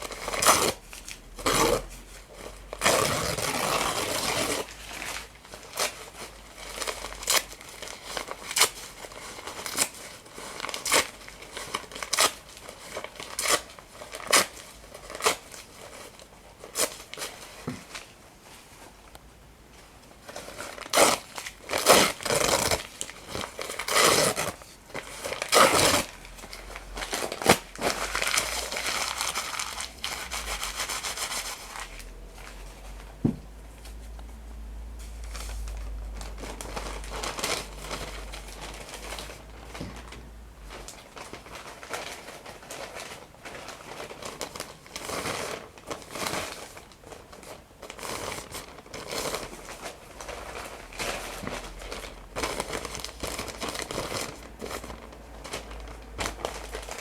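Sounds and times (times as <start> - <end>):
paper being torn and crumpled: 20.4 - 32.6.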